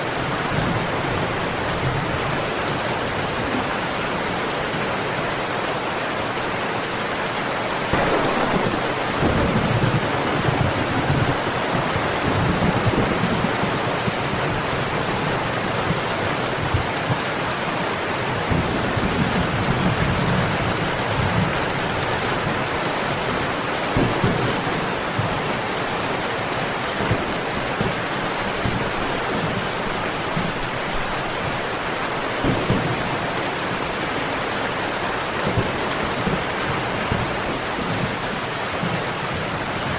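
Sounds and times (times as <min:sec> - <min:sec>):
steady rain: 0:00.0 - 0:39.9
thunder rumbling: 0:07.9 - 0:17.5, 0:23.8 - 0:38.3.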